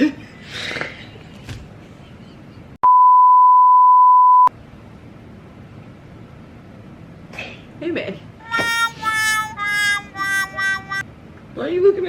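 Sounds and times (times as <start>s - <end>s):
censor bleep tone: 2.8s - 4.5s.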